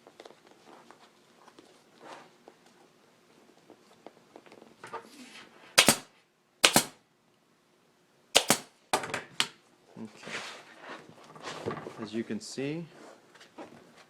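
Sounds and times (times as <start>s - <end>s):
staple gun snaps: 5.8s - 7.0s, 8.4s - 8.7s.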